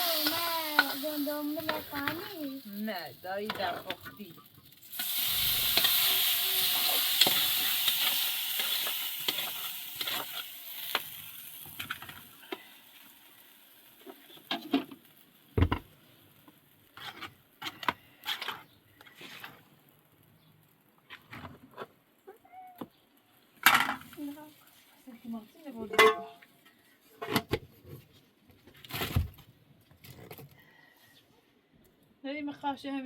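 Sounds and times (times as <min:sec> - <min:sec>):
food sizzling in a pan: 0:00.0 - 0:17.3, 0:24.0 - 0:26.0.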